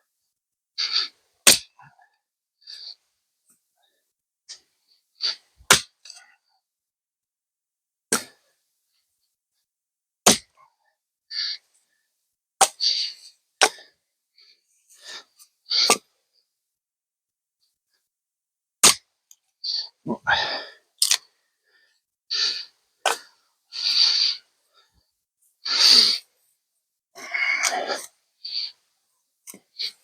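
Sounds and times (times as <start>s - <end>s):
axe striking wood: 1.5s - 1.7s, 5.7s - 5.9s, 10.3s - 10.5s
breathy bursts: 20.1s - 20.9s, 27.2s - 28.8s.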